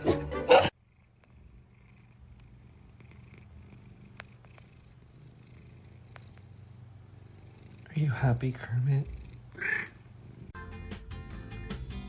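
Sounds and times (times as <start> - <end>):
cat purring: 0.7 - 10.6
faint clicks: 4.1 - 4.7.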